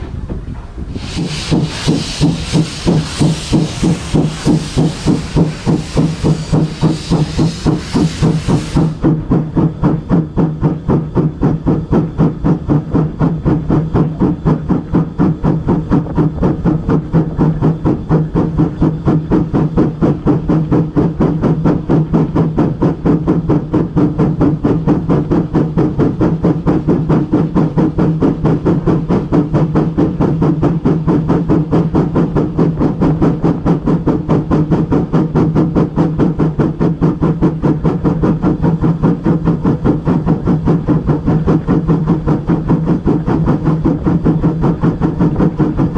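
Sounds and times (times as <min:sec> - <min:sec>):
railway locomotive running: 0:00.0 - 0:45.9.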